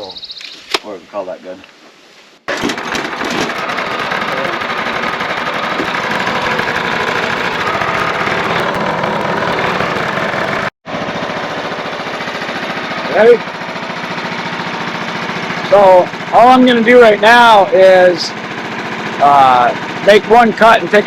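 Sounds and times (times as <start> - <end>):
sawmill engine idling: 2.5 - 10.8.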